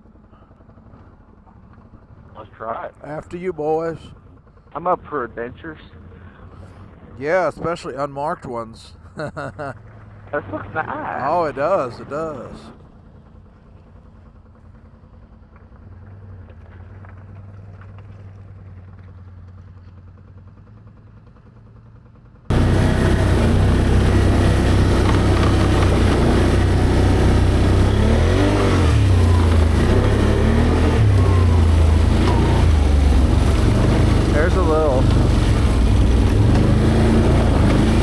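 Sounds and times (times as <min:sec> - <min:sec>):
atv engine revving: 0:09.2 - 0:12.9, 0:22.5 - 0:38.0
heavy rushing noise: 0:22.5 - 0:38.0.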